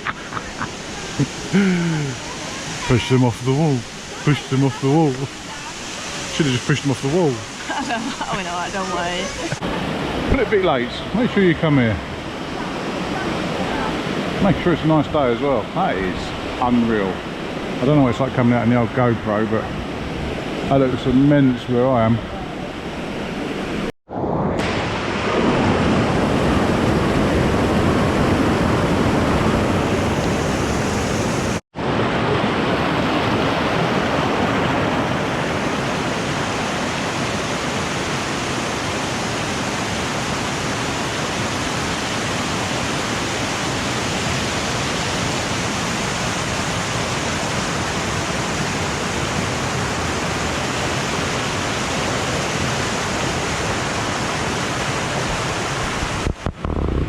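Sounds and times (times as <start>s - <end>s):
waterfall rushing: 0.0s - 23.9s, 24.6s - 56.5s.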